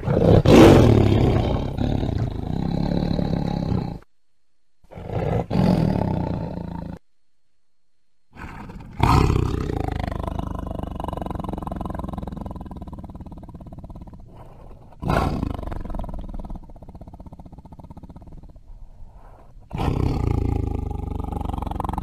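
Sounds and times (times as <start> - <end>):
tiger roaring: 0.0 - 4.1, 4.9 - 7.0, 8.3 - 22.0
tiger rumbling: 0.0 - 4.1, 4.8 - 7.0, 8.3 - 22.0.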